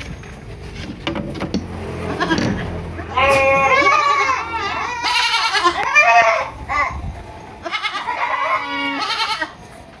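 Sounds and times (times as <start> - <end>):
goat bleating: 2.0 - 6.9, 7.6 - 9.6.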